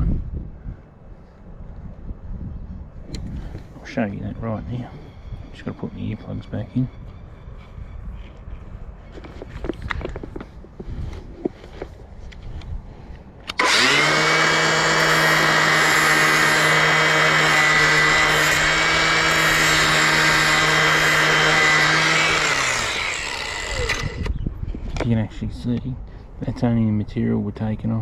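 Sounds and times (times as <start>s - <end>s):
angle grinder grinding blade: 13.5s - 24.3s.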